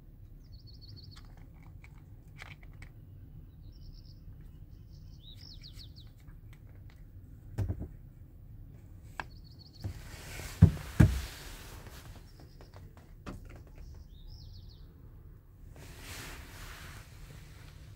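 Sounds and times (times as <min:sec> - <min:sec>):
birds chirping in quick trills: 0:03.6 - 0:06.2.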